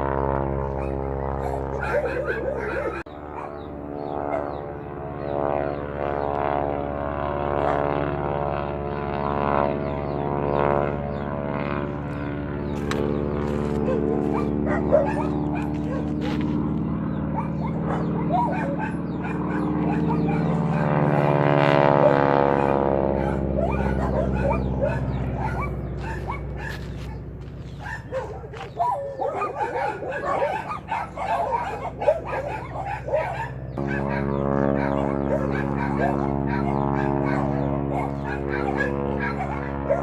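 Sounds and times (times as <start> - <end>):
plane engine droning: 0.0 - 40.0
dog barking and yipping: 0.7 - 3.6, 13.8 - 16.3, 17.3 - 20.8, 22.0 - 40.0.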